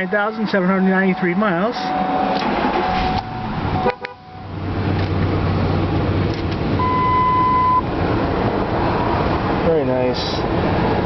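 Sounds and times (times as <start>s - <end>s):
car engine idling: 0.0s - 11.0s
electronic beep tone: 6.8s - 7.8s.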